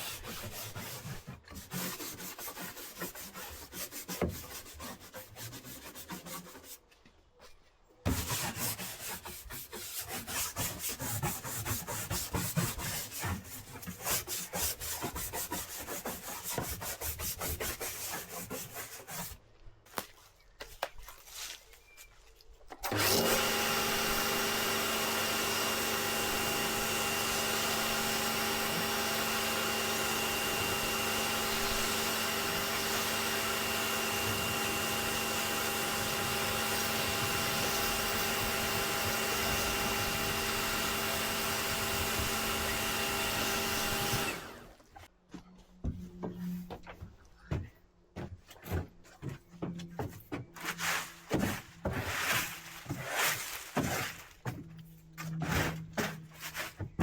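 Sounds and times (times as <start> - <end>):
electric motor running: 22.9 - 44.6.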